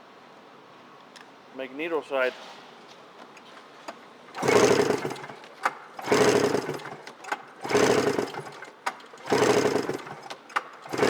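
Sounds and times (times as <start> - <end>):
engine being cranked over: 3.3 - 11.0.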